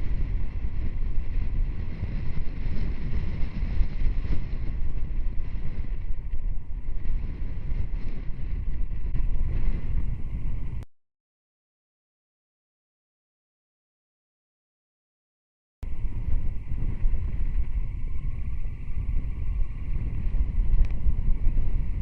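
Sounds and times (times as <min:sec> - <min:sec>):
motorcycle rumble: 0:00.0 - 0:10.8, 0:15.8 - 0:22.0
wind buffeting microphone: 0:00.0 - 0:10.8, 0:15.8 - 0:22.0.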